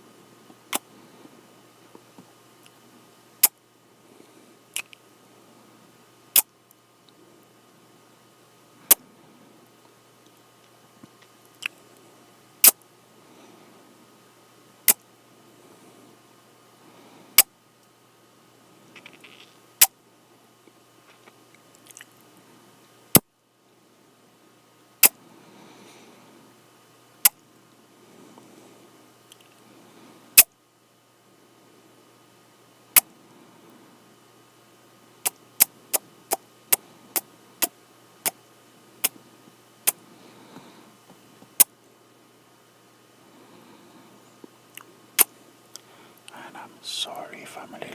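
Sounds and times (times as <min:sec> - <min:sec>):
lip smacking kisses: 0:04.8 - 0:05.0
mouth and breath noise: 0:35.2 - 0:41.4.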